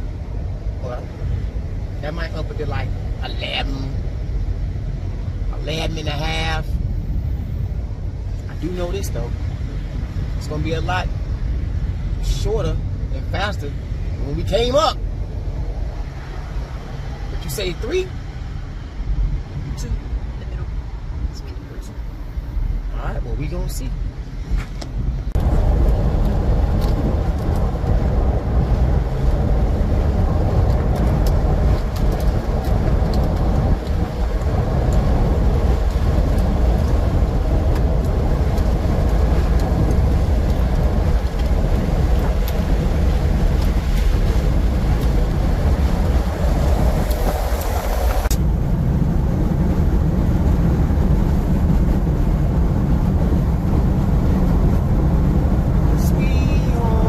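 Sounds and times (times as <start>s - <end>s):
car cabin road rumble: 0.0s - 57.0s
broad road hiss: 25.4s - 48.6s.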